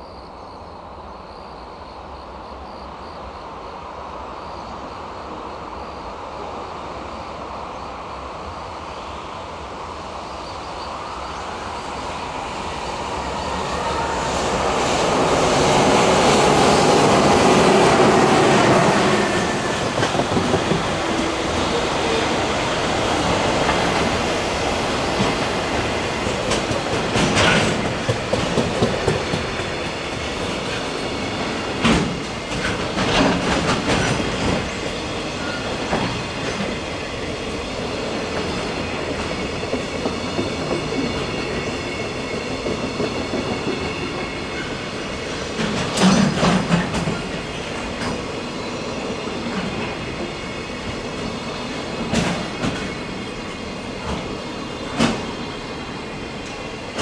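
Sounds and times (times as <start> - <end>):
wheels clacking over rail joints: 13.0 - 48.4, 49.0 - 55.7.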